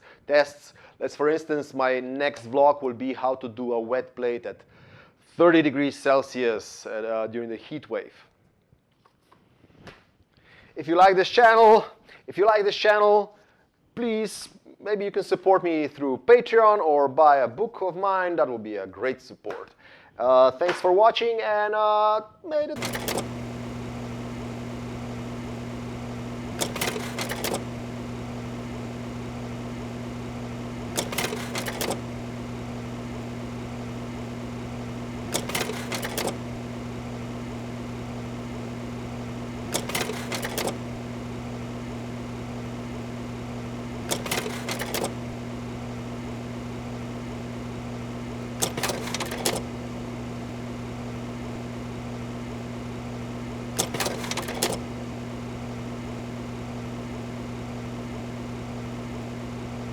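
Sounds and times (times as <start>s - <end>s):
low electrical hum: 22.8s - 59.9s
rapid mechanical clicking: 22.8s - 59.9s.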